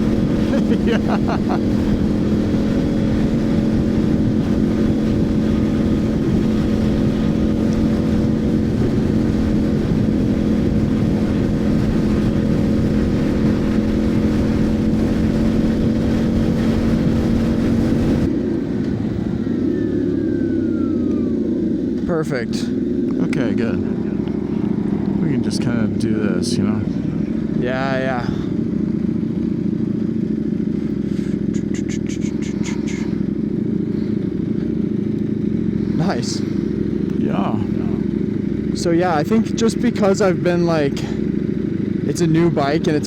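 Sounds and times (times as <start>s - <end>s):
wind rush on microphone: 0.0s - 22.0s
motorcycle engine cruising: 0.0s - 43.0s
faint whine falling in pitch: 18.2s - 25.9s.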